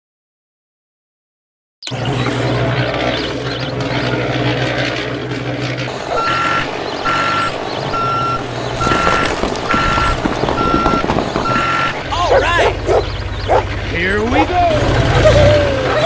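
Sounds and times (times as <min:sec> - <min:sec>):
truck engine running: 0:01.8 - 0:16.0
reversing alarm beeping: 0:05.9 - 0:13.6.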